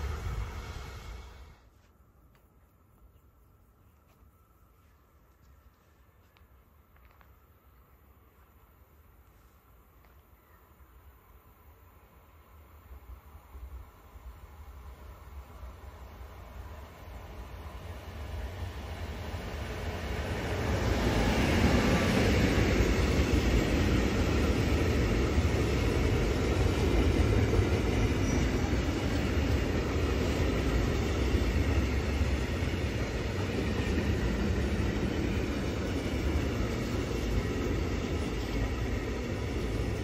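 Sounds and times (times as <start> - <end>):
train wagons rolling on rails: 0.0 - 1.7, 13.5 - 40.0
electric locomotive passing: 0.0 - 2.1, 3.2 - 40.0.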